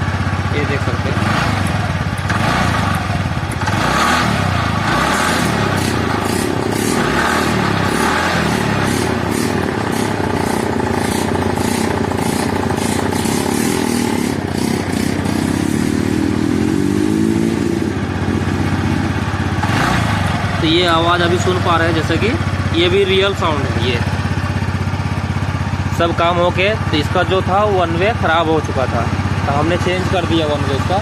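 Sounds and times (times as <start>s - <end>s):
light engine ticking: 0.0s - 4.1s, 4.8s - 15.6s, 18.6s - 31.0s
scooter engine revving: 0.0s - 31.0s.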